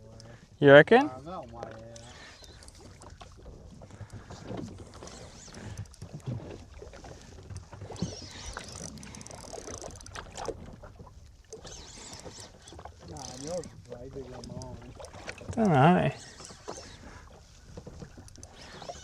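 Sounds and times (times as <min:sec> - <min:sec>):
water and hull noise: 0:00.0 - 0:19.0.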